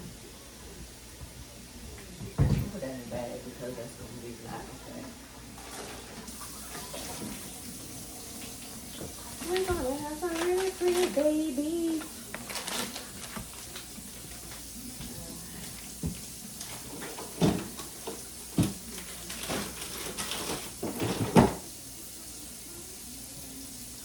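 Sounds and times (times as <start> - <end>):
household items knocking and clattering: 17.0 - 21.6.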